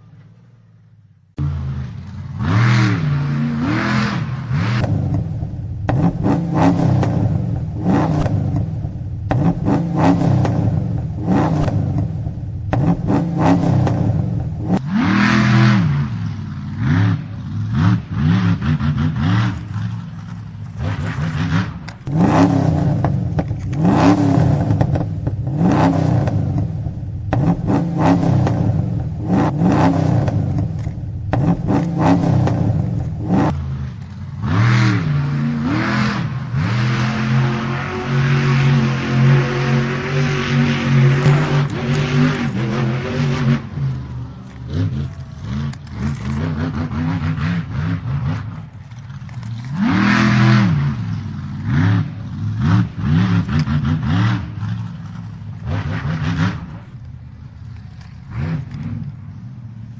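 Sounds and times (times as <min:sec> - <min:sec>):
car engine revving: 0:17.7 - 0:59.2
short scrapes or clatters: 0:19.2 - 0:25.0, 0:29.3 - 0:35.0, 0:40.5 - 0:47.2, 0:48.2 - 0:53.8, 0:55.2 - 0:59.4.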